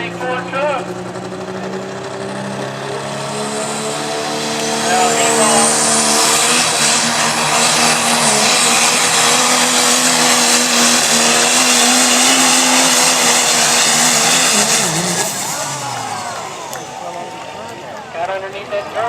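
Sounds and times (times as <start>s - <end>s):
high whine: 0.0s - 18.8s
diesel pickup engine under load: 0.0s - 19.0s.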